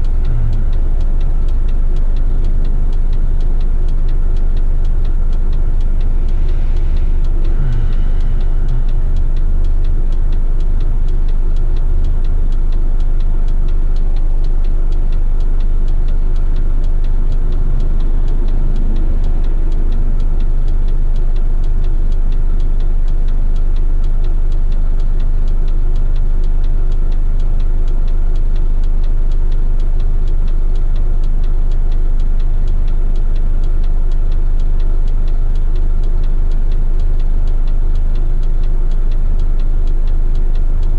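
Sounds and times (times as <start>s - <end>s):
diesel truck engine droning: 0.0s - 25.0s.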